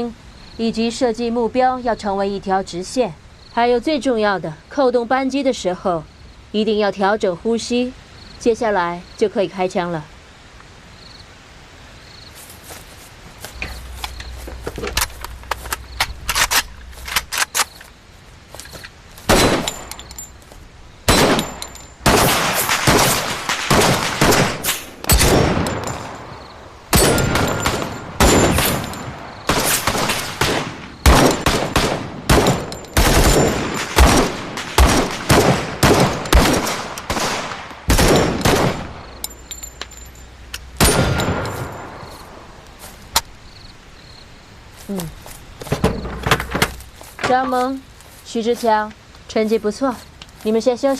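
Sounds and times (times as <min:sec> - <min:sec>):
pistol shots echoing: 0:19.3 - 0:20.1, 0:21.1 - 0:26.3, 0:26.9 - 0:39.1, 0:40.8 - 0:42.0.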